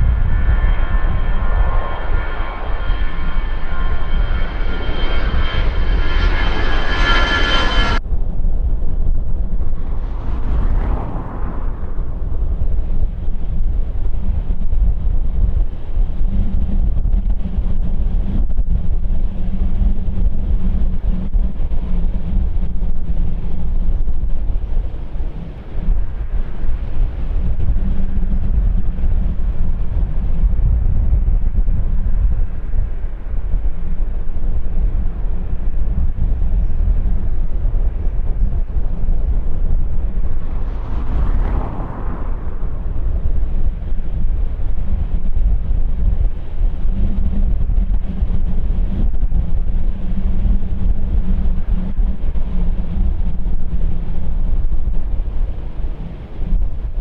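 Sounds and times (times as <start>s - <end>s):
faint constant hum: 0.0s - 57.0s
jet engines rumbling: 0.0s - 57.0s
wind buffeting microphone: 0.0s - 57.0s.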